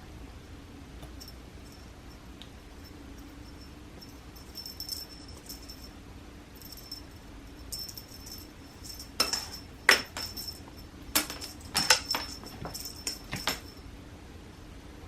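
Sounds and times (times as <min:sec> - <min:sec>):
cat toy jingling: 0:02.8 - 0:06.0, 0:06.6 - 0:13.8
sharp taps and rattles: 0:07.7 - 0:13.8.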